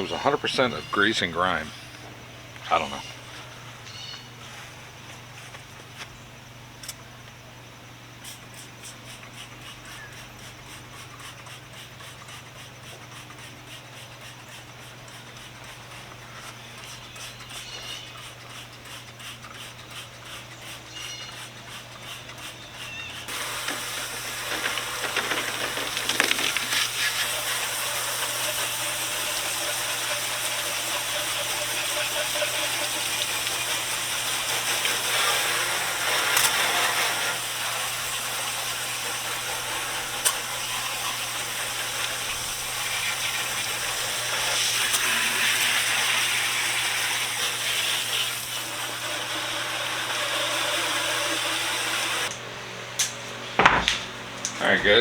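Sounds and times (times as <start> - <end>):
scrubbing strokes: 9.3 - 52.3
spray cleaner hissing: 23.2 - 52.3.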